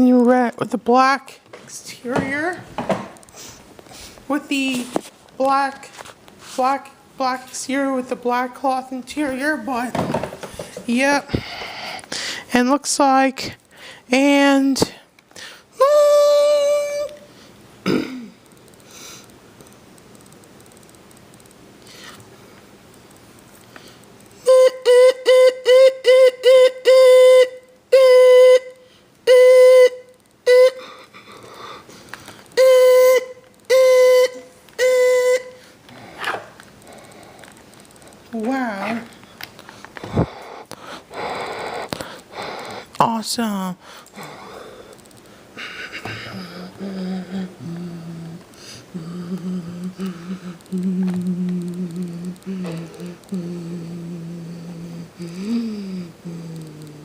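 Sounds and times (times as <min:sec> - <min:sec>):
man humming: 0:15.8 - 0:17.2, 0:45.6 - 0:57.0.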